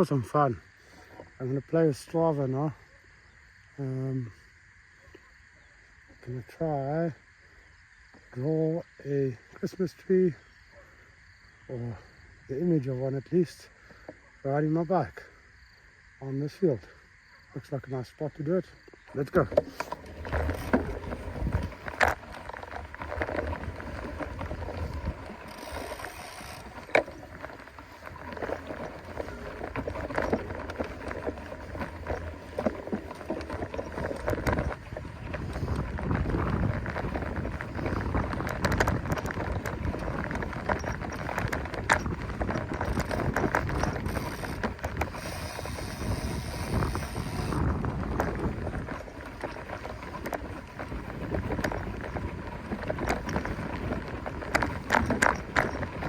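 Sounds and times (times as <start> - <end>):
bike tyres rolling on grass: 0.0 - 4.4, 18.8 - 56.0
bike clicks and rattles: 19.0 - 56.0
wind on microphone: 19.5 - 56.0.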